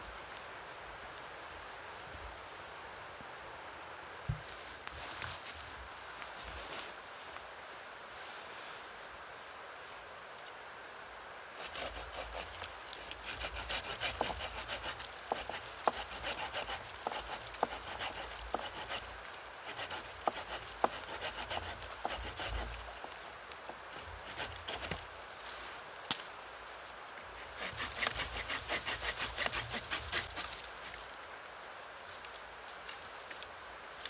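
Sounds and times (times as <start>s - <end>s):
hand saw cutting wood: 11.6s - 23.2s, 24.0s - 25.0s, 27.4s - 30.7s.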